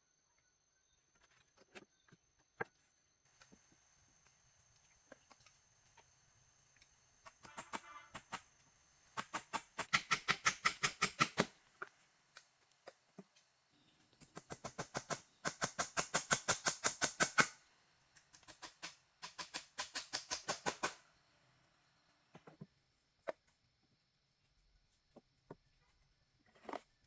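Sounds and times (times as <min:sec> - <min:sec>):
rapid sharp strokes: 0:07.3 - 0:08.5, 0:09.2 - 0:11.5.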